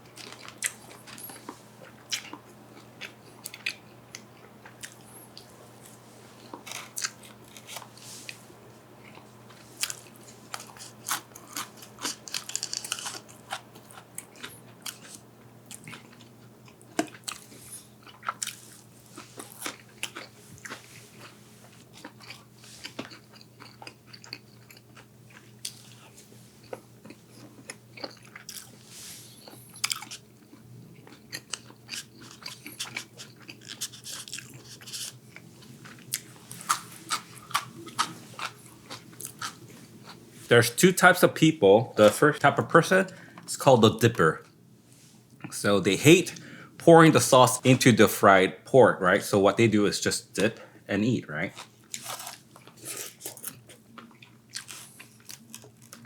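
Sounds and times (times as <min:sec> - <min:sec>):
crunchy chewing: 0:00.0 - 0:08.4, 0:09.0 - 0:40.2, 0:51.4 - 0:56.0.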